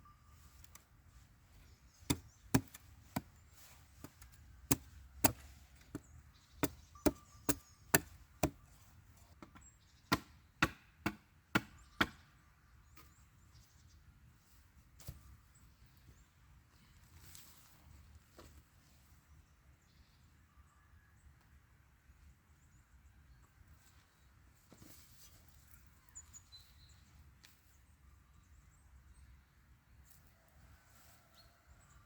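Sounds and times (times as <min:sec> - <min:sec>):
wood chopping strikes: 0:02.0 - 0:03.4, 0:04.0 - 0:08.6, 0:09.4 - 0:12.2.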